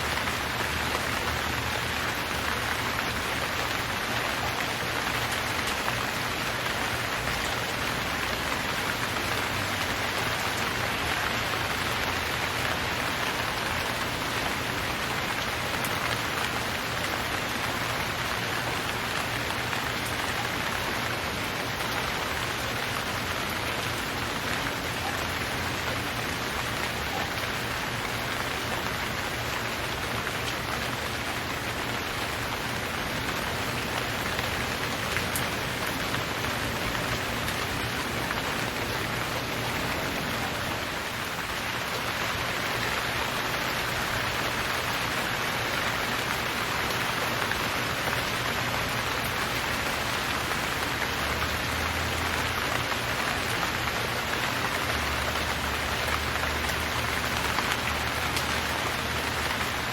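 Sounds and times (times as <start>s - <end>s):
rain pattering on surfaces: 0.0s - 59.9s.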